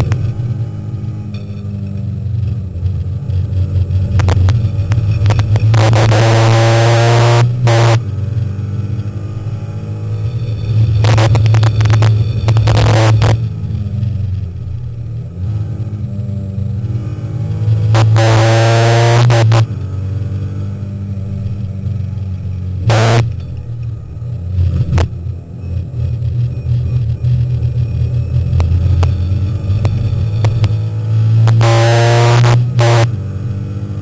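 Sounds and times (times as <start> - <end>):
race car engine revving: 0.0 - 34.0.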